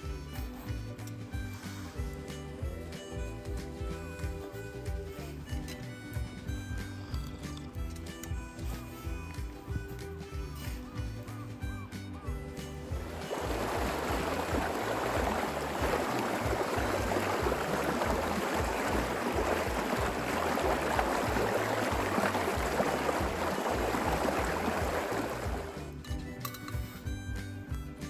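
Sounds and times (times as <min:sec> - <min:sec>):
background music with low bass: 0:00.0 - 0:28.0
steady rushing noise: 0:12.9 - 0:25.8.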